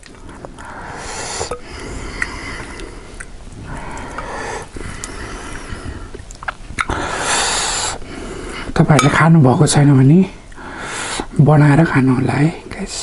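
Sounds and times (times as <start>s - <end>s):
person breathing hard wheezing: 0.2s - 8.8s, 10.6s - 11.3s.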